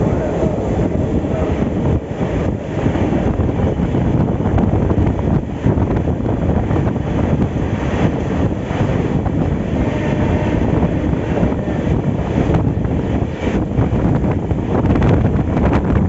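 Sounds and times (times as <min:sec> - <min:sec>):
train wheels rumbling on rails: 0:00.0 - 0:16.0
wind buffeting microphone: 0:00.0 - 0:16.0.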